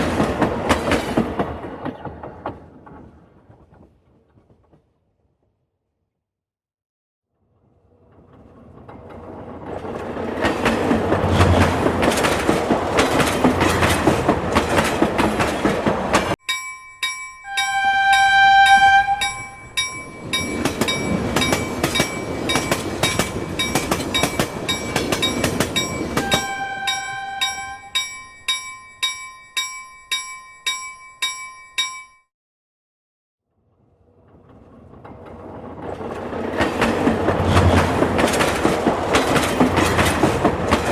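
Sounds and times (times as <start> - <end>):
train rumble and wheel clatter: 0.0 - 5.0, 7.8 - 16.4, 17.6 - 28.2, 34.1 - 40.9
wheels clacking over rail joints: 8.0 - 16.4, 17.7 - 27.9, 34.2 - 40.9
train horn: 17.5 - 19.6, 26.2 - 28.0.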